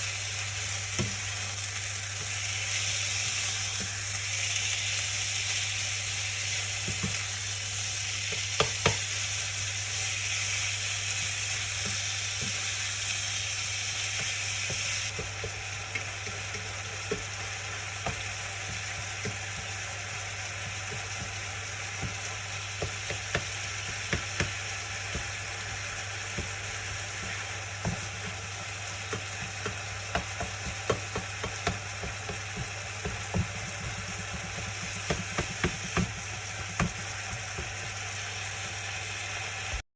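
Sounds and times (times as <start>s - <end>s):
food sizzling in a frying pan: 0.0s - 39.8s
utensil stirring in a pan: 0.1s - 39.8s
taps and knocks against pan: 8.3s - 9.1s, 18.0s - 19.7s, 22.0s - 25.3s, 29.1s - 38.0s.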